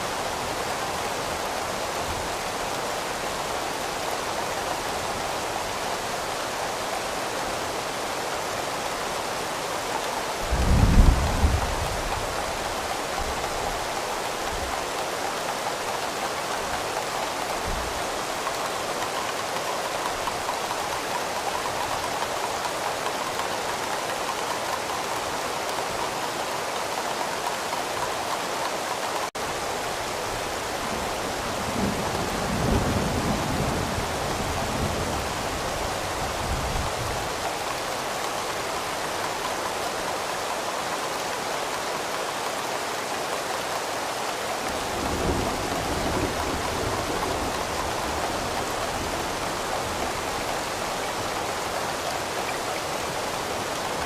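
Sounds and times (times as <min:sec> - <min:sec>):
steady rain falling: 0:00.0 - 0:54.0
low rumble of thunder: 0:10.5 - 0:12.3.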